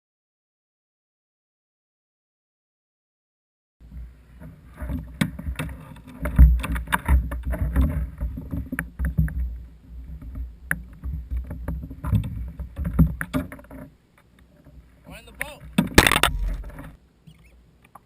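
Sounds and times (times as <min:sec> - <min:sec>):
knocks and clatter on kayak: 0:03.9 - 0:14.0, 0:15.4 - 0:17.0
low rumble: 0:16.0 - 0:17.0.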